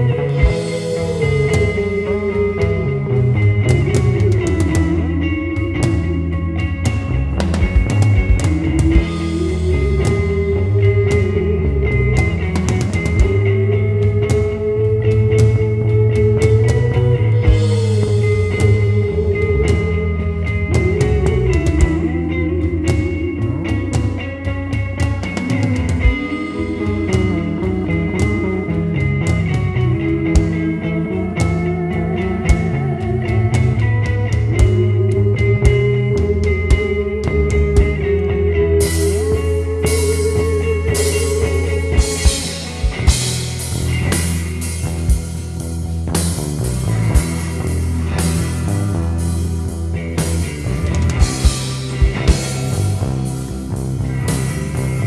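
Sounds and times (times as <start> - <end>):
drum kit with cymbals: 0.0 - 30.8, 38.8 - 55.0
bass guitar: 0.0 - 55.0
electric guitar bending note: 0.0 - 55.0
drum kit and cymbal hits: 41.0 - 55.0.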